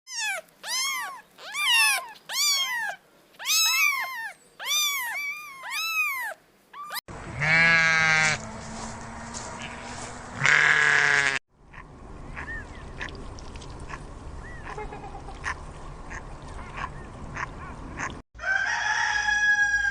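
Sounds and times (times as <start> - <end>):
kitten meowing: 0.1 - 7.0.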